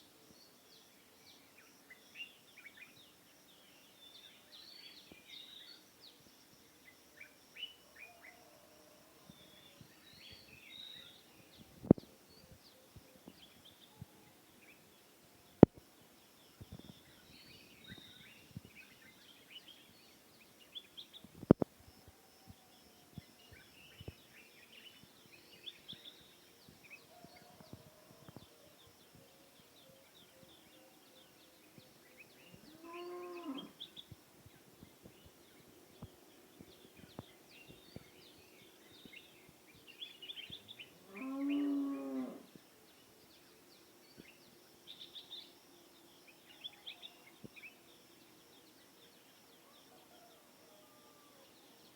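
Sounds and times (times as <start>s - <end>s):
small birds chirping: 9.3s - 51.9s
farm animal mooing: 32.7s - 33.7s, 41.1s - 42.5s.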